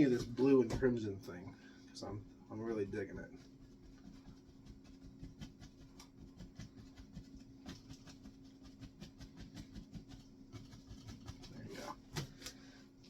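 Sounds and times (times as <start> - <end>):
low steady hum: 0.0 - 13.0
paintbrush dabbing on canvas: 3.0 - 12.3.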